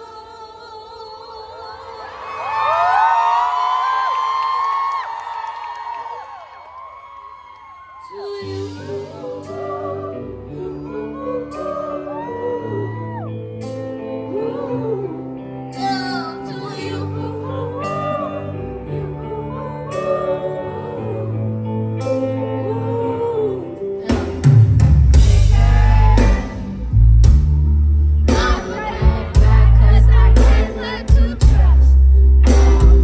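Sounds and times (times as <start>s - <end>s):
person singing pop song: 0.0s - 3.0s, 8.0s - 27.4s, 28.2s - 33.0s
heavy bass and drums: 24.1s - 33.0s.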